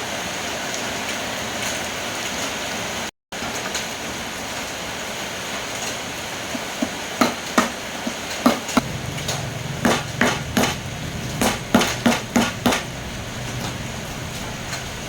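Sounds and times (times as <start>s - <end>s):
hammer strikes: 6.8s - 13.8s
low steady hum: 8.8s - 15.0s.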